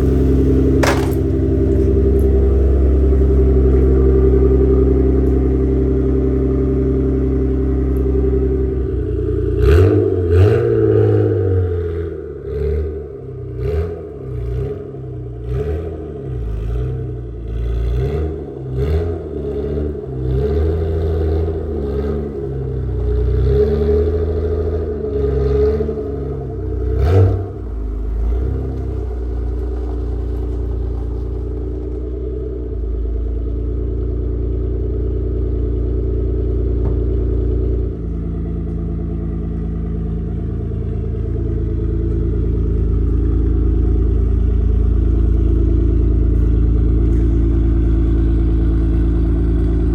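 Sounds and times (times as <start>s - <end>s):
car engine running: 0.0s - 49.9s
knocks and clatter: 0.8s - 2.4s, 28.2s - 32.3s.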